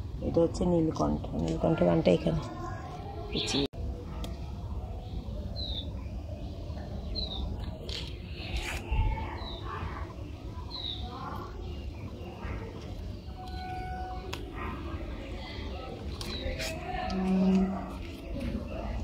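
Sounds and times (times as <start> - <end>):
bird chirping: 5.0 - 8.6, 10.6 - 14.3.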